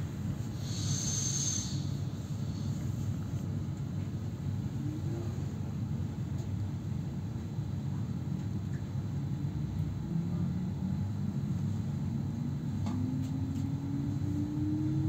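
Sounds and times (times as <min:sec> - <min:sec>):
train running gear rumble: 0:00.0 - 0:15.0
rising motor whine: 0:12.9 - 0:15.0.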